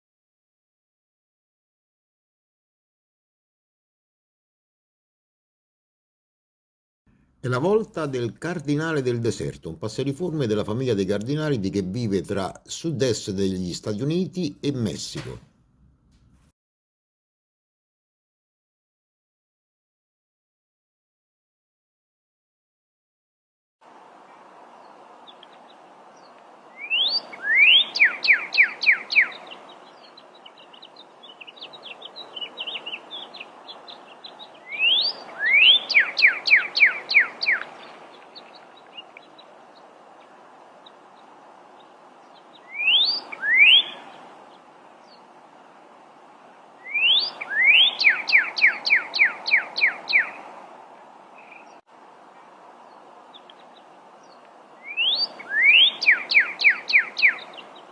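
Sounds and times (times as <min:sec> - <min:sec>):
bird singing whistled songs: 0:26.2 - 0:39.4, 0:42.3 - 0:44.3, 0:46.8 - 0:50.5, 0:53.3 - 0:57.9.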